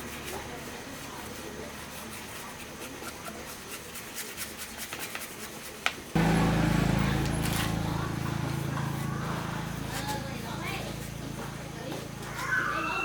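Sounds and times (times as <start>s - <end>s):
motor humming: 6.2s - 12.5s.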